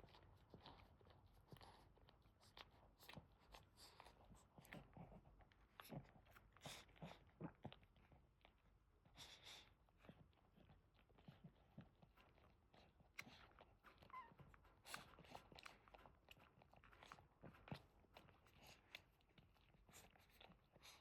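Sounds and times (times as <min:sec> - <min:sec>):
dog licking puppies: 0:00.0 - 0:21.0
faint puppy squeak: 0:14.0 - 0:15.4.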